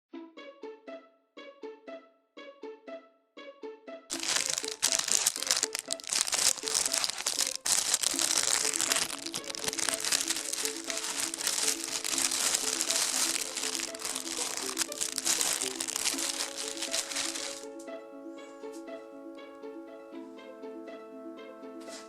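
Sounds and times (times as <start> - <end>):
background music plucked melody: 0.1 - 22.0
crinkly bag rustling: 4.1 - 17.7.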